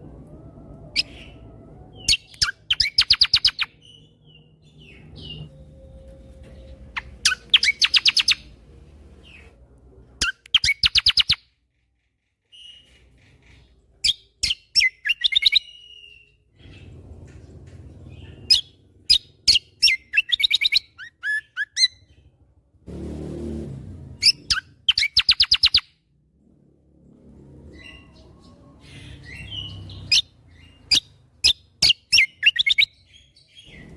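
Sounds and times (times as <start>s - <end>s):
songbird staccato singing: 0.9s - 5.6s, 6.2s - 8.6s, 10.2s - 11.4s, 12.5s - 22.4s, 24.2s - 25.9s, 27.8s - 33.9s.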